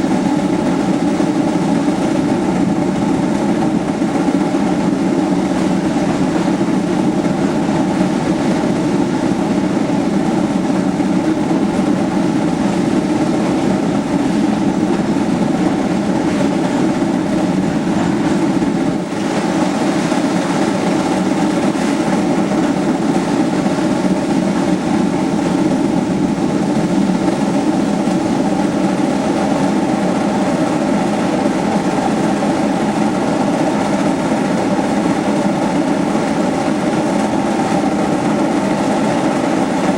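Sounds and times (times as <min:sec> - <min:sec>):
steam locomotive exhaust and running gear: 0:00.0 - 0:39.9.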